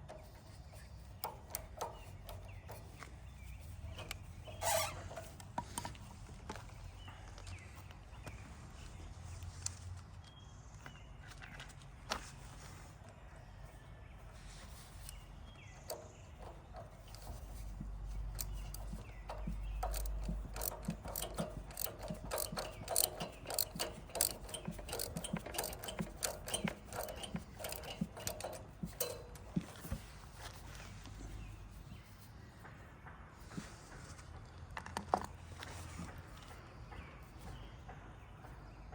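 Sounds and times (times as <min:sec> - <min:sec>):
hand tools clicking on metal: 0:00.0 - 0:06.0, 0:15.8 - 0:30.3.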